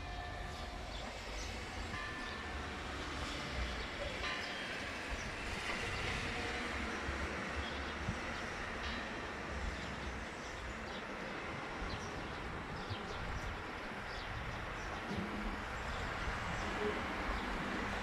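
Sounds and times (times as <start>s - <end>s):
street traffic noise: 0.0s - 18.0s
wind buffeting microphone: 11.5s - 18.0s.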